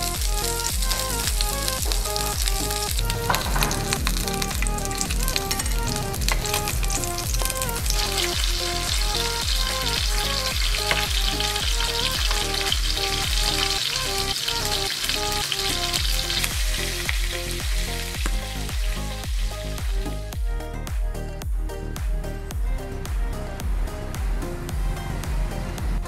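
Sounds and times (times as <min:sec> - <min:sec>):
meat sizzling in a pan: 0:00.0 - 0:20.0
background music with steady beat: 0:00.0 - 0:26.0.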